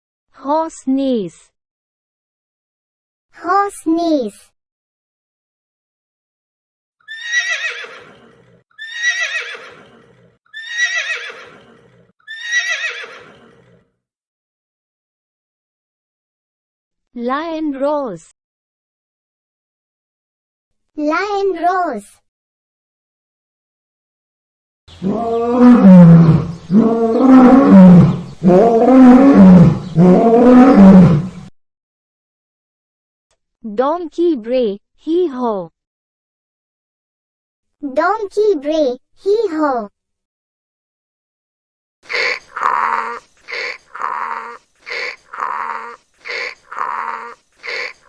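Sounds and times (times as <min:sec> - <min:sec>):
horse neighing: 0:07.1 - 0:13.8, 0:42.1 - 0:48.0
lion roaring: 0:25.0 - 0:31.5, 0:42.1 - 0:48.0.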